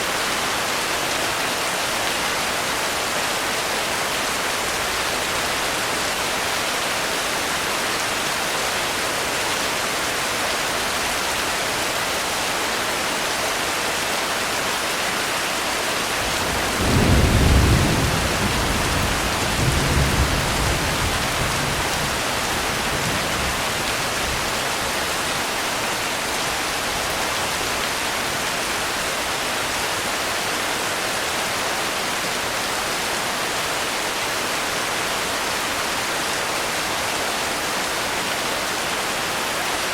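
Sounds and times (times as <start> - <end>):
heavy rain hissing: 15.3 - 35.0
low rumble of thunder: 16.4 - 23.8.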